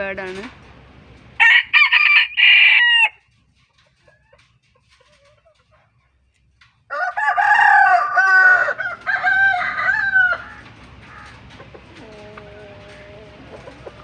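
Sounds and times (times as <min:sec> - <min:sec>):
rooster crowing: 0:01.4 - 0:03.2, 0:06.9 - 0:11.2.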